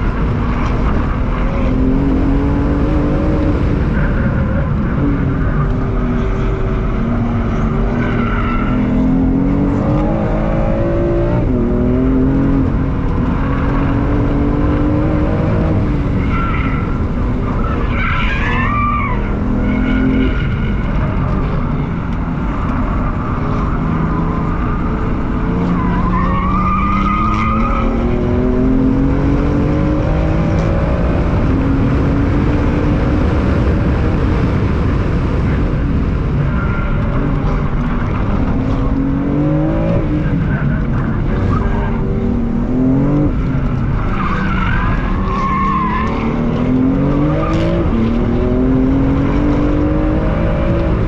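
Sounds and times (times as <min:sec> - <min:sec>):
car engine revving: 0:00.0 - 0:51.0.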